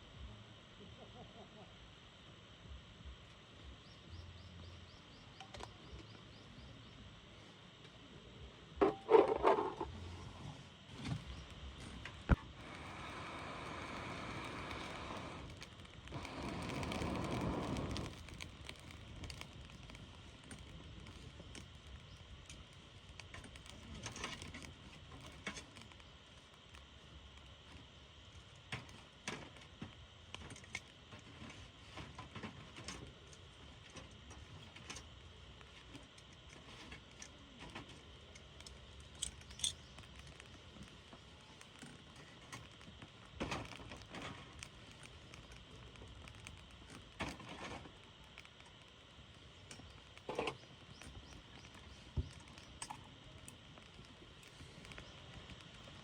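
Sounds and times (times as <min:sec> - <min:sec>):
faint steady hiss: 0:00.0 - 0:56.0
small clicks and clinks: 0:38.3 - 0:40.5.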